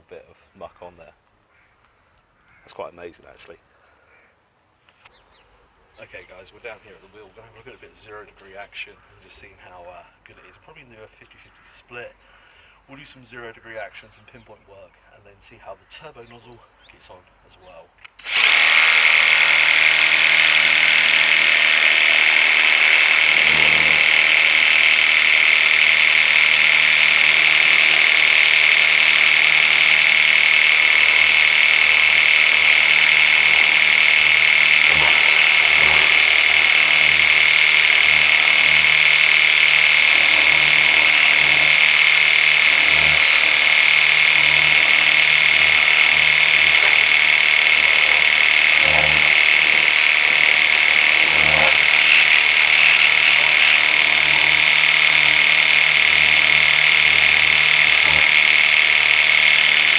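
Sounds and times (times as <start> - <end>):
pressure washer motor whine: 18.2 - 59.9
water jet hissing: 18.2 - 59.9.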